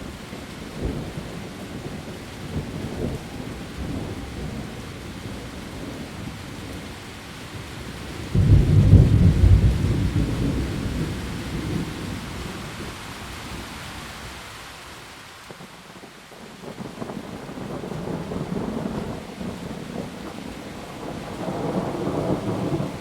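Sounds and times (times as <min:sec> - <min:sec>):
heavy rain on leaves: 0:00.0 - 0:23.0
thunder roll: 0:08.3 - 0:11.9.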